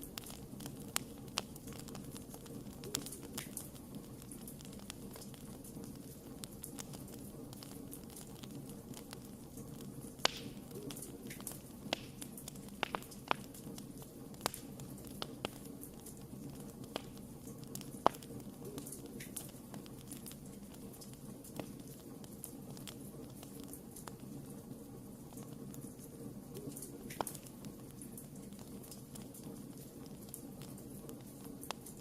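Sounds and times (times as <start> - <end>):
wood fire crackling: 0.0 - 32.0
loud wood snaps: 10.2 - 10.6.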